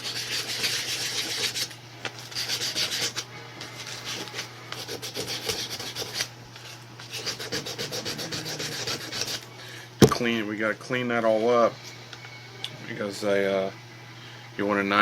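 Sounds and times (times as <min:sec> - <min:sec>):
sandpaper rasping on metal: 0:00.0 - 0:01.7, 0:02.3 - 0:03.2, 0:03.8 - 0:06.3, 0:07.0 - 0:09.4.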